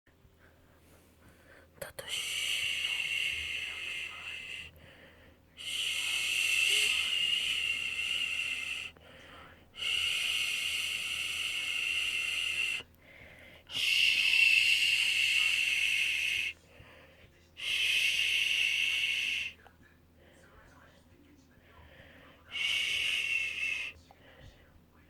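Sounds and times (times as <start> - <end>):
shushing hisses: 2.0 - 4.7, 5.6 - 9.0, 9.8 - 12.9, 13.7 - 16.6, 17.6 - 19.6, 22.5 - 24.0.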